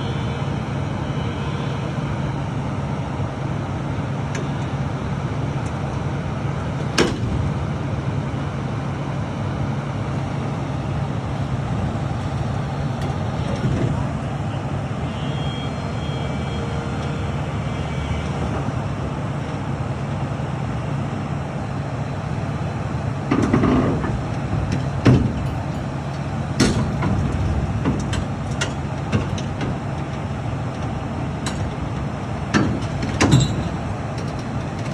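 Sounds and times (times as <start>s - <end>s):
heavy machinery engine humming: 0.0s - 34.9s
metal knocks and clanks: 23.3s - 30.2s, 30.8s - 34.9s.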